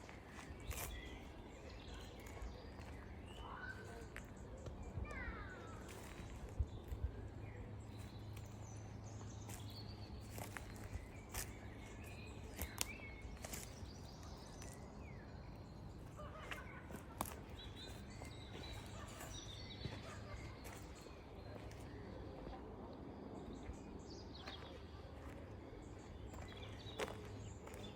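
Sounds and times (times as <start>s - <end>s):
birds chirping: 0.0s - 27.9s.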